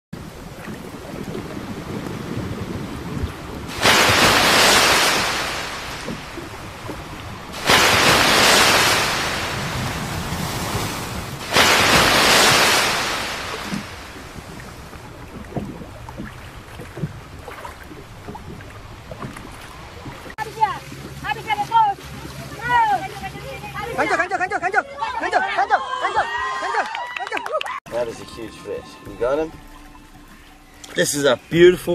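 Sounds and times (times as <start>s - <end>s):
water lapping: 0.2s - 26.2s, 27.9s - 31.9s
water splashing beside boat: 0.2s - 31.9s.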